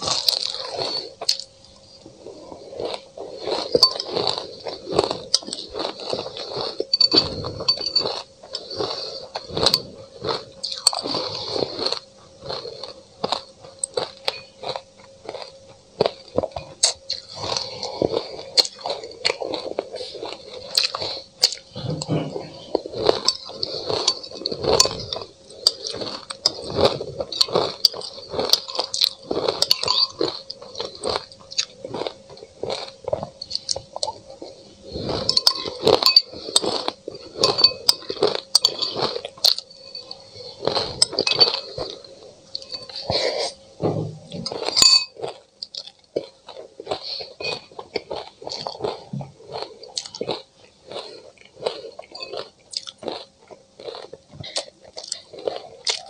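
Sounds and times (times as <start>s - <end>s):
crunching and chewing icy food: 0.0s - 56.0s
metal spoon clinking on ceramic bowl: 44.8s - 45.2s.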